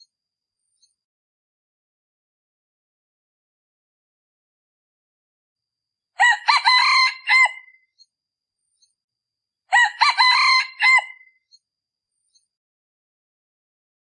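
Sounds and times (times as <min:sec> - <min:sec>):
rooster crowing: 0:06.2 - 0:07.8, 0:09.7 - 0:11.3.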